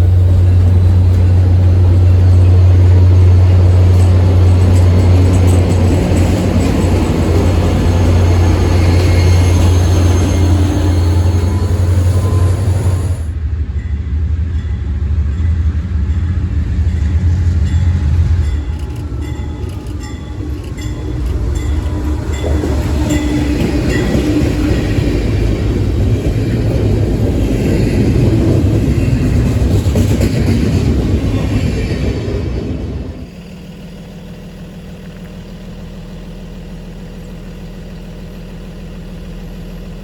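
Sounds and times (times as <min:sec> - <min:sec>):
wheels squealing: 0:00.0 - 0:13.3
train passing: 0:00.0 - 0:36.6.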